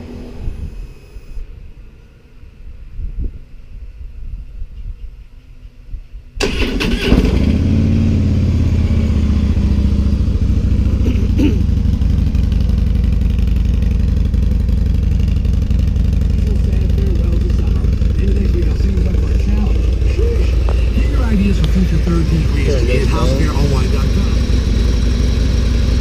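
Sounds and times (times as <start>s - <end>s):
motorcycle engine starting and idling: 6.4s - 26.0s.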